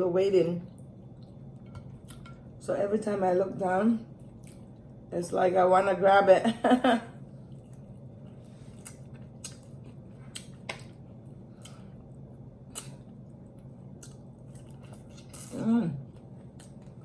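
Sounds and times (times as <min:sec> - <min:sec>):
steady low hum: 0:00.0 - 0:17.0
chewing smacks: 0:07.5 - 0:12.1, 0:12.7 - 0:15.5, 0:16.2 - 0:17.0.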